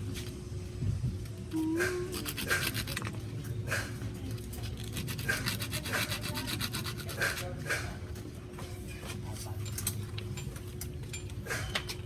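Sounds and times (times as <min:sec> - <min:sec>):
sandpaper scratching metal: 0:04.7 - 0:07.6.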